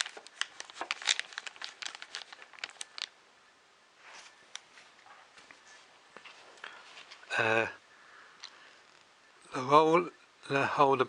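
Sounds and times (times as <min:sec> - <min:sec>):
plastic wrapping crinkling: 0:00.0 - 0:03.2.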